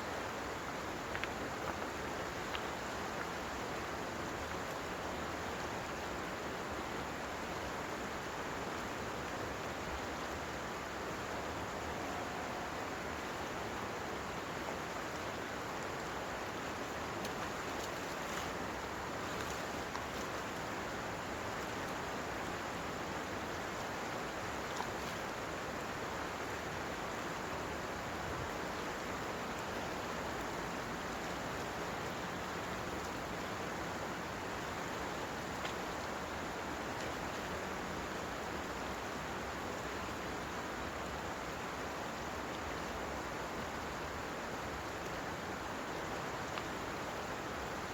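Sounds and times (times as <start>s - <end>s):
rushing water: 0.0s - 47.9s
faint tick: 1.1s - 1.9s, 2.5s - 3.3s, 46.5s - 46.7s.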